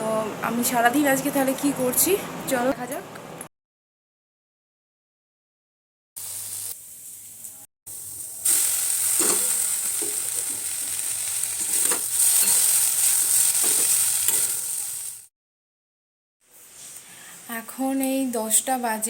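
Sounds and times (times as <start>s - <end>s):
food sizzling in a pan: 6.2s - 15.3s
spatula scraping a pan: 8.5s - 14.9s.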